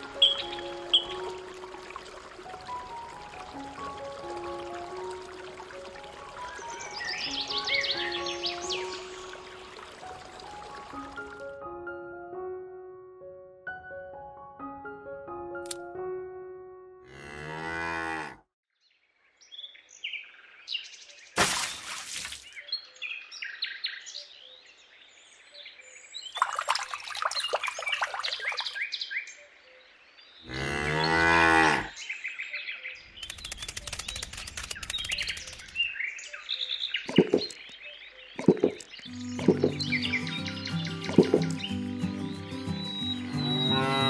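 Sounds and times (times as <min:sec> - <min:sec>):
birds chirping: 0:00.0 - 0:01.6, 0:06.3 - 0:11.1, 0:26.2 - 0:29.4, 0:30.4 - 0:44.0
cows mooing: 0:17.1 - 0:18.4, 0:30.5 - 0:31.9, 0:43.3 - 0:44.0.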